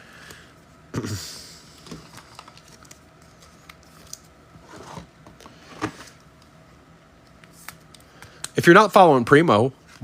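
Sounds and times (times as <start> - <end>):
pack wrappers rustling: 2.0 - 4.3.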